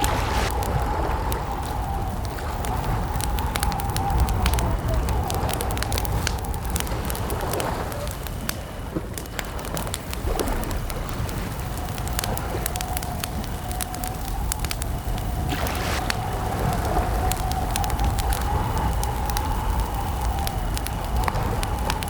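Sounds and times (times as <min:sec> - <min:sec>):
low rumble: 0:00.0 - 0:07.5
campfire crackling and popping: 0:00.0 - 0:22.0.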